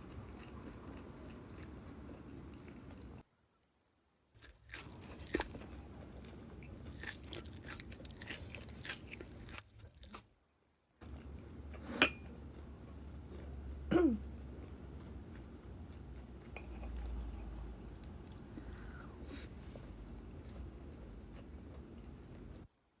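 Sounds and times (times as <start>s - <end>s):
crisp crunching of chewing: 4.4s - 10.3s.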